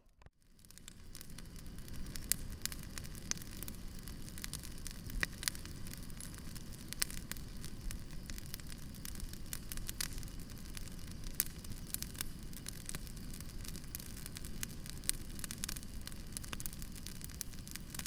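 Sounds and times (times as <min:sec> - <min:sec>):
campfire crackling and popping: 0:00.1 - 0:18.0.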